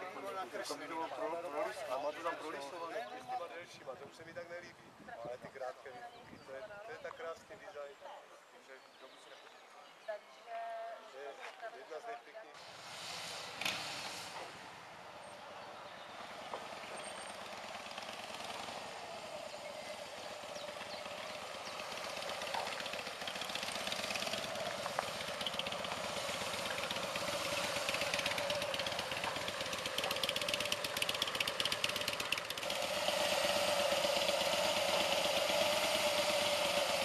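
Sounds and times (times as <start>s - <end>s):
motorcycle engine running: 15.8s - 37.0s.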